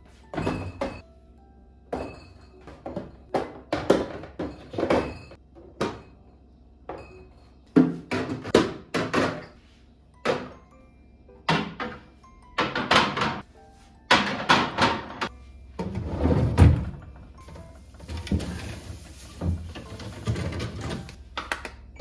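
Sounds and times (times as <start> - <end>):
kitchen objects knocking and clattering: 0.3 - 1.0, 1.9 - 6.3, 6.9 - 9.6, 11.5 - 13.5, 14.1 - 21.8.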